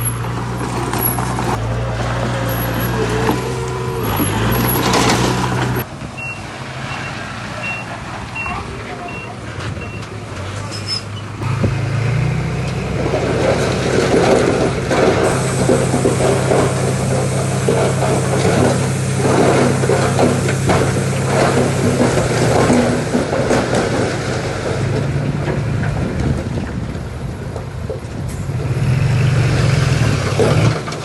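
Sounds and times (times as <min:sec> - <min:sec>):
diesel engine under load: 0:00.0 - 0:31.0.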